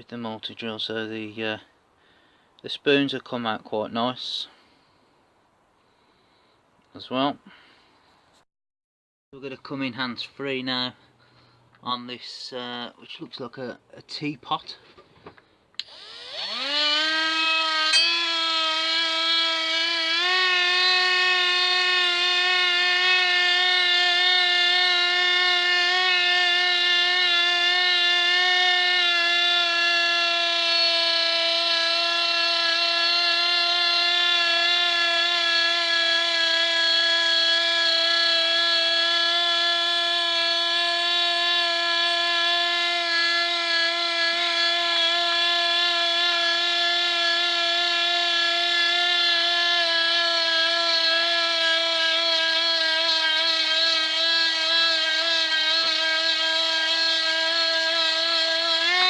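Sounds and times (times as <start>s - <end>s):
rotary tool whining: 15.8s - 59.0s.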